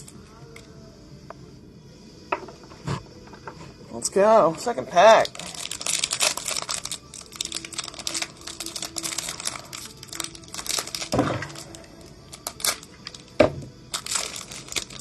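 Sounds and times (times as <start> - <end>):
wrapper being torn and crinkled: 5.1 - 15.0.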